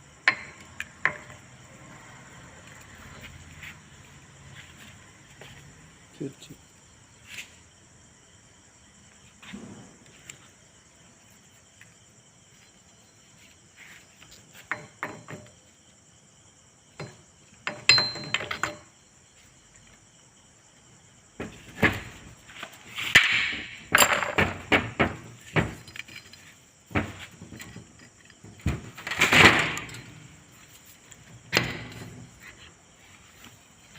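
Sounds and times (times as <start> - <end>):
metallic clinks and knocks: 17.0 - 19.0, 23.8 - 30.4.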